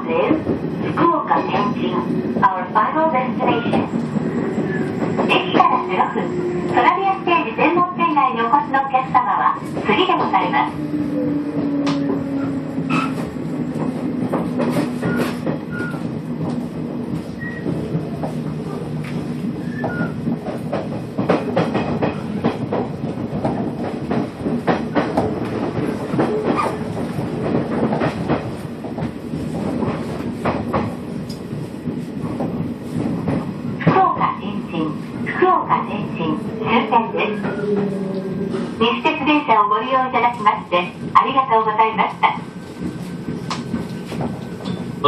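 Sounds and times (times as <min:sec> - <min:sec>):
electric train running hum: 0:00.2 - 0:45.0
wheels clacking on track: 0:09.5 - 0:31.4.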